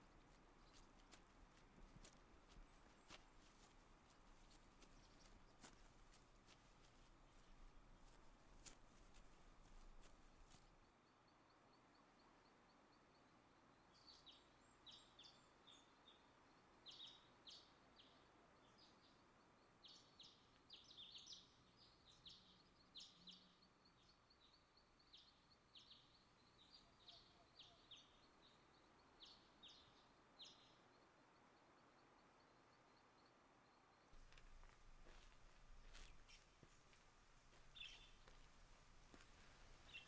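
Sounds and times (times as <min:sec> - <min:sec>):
birds chirping: 0:14.0 - 0:31.0, 0:31.8 - 0:40.0.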